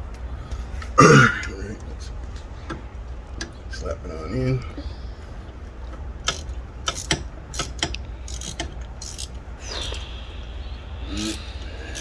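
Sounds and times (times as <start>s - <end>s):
ratchet wrench clicking: 6.2s - 10.2s, 11.1s - 12.0s.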